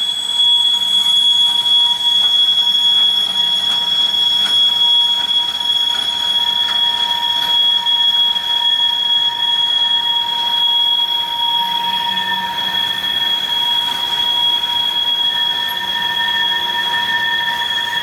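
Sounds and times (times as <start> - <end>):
high-pitched wheel squeal: 0.0 - 18.0
rumble and clicking of wheels: 0.8 - 8.3.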